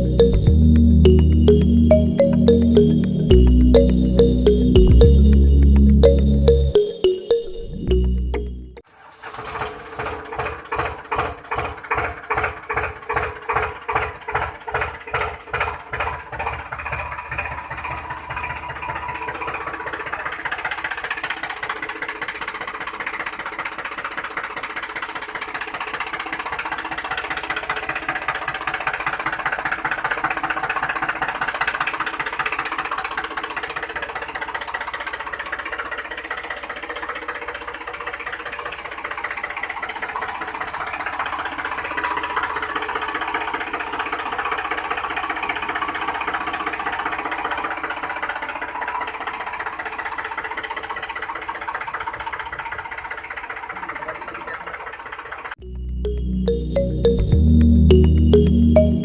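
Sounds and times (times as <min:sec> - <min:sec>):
small engine chugging: 0:09.0 - 0:55.6.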